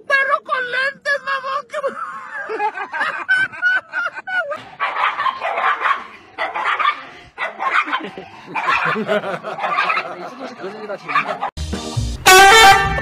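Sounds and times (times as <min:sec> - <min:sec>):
small dog barking: 0:04.8 - 0:08.0, 0:08.6 - 0:10.1, 0:11.1 - 0:11.5.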